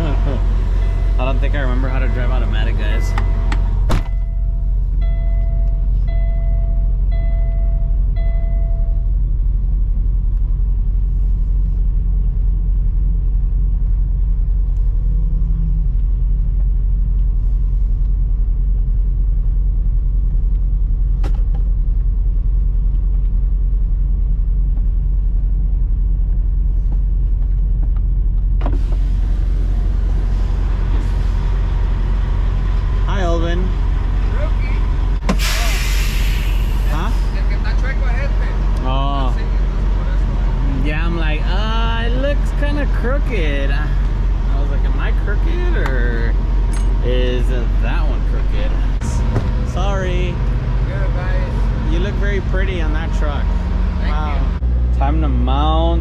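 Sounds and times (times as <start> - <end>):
diesel truck engine rumbling: 0.0 - 56.0
electronic warning beeps: 0.8 - 9.0
rushing hiss: 35.3 - 37.0.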